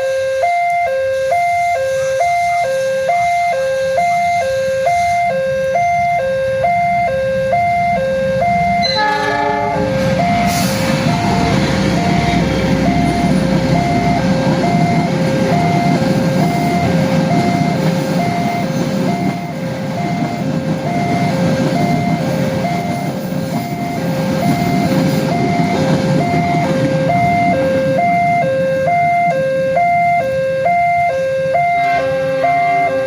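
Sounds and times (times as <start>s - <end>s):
locomotive horn: 0.0s - 16.0s, 26.4s - 33.0s
level crossing two-tone alarm: 0.0s - 33.0s
train rumbling over rails: 1.1s - 33.0s.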